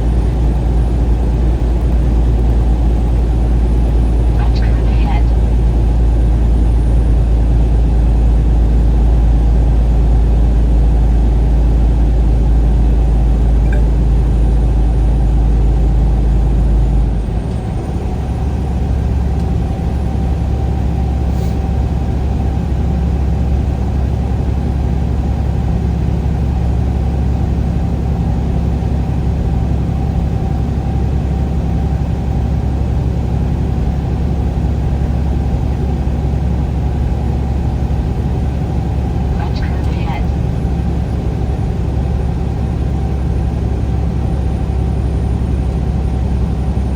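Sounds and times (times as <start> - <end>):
vehicle engine and road drone: 0.0 - 23.8, 33.3 - 46.9.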